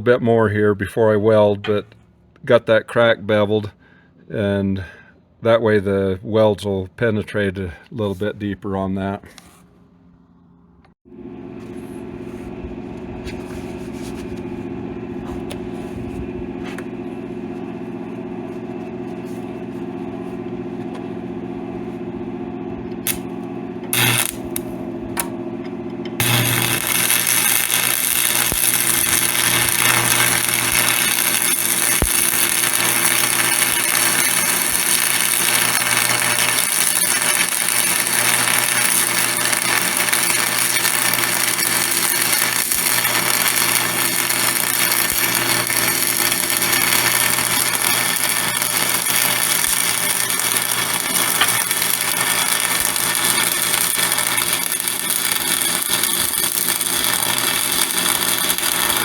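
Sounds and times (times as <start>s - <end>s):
electric grinder grinding steel: 22.9s - 59.0s.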